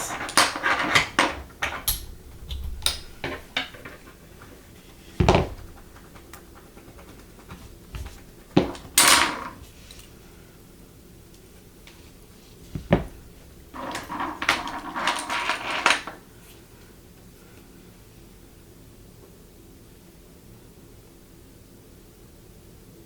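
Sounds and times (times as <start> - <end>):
rustling scrape: 0.0 - 10.3
heavy thump: 1.6 - 9.0, 12.8 - 13.7.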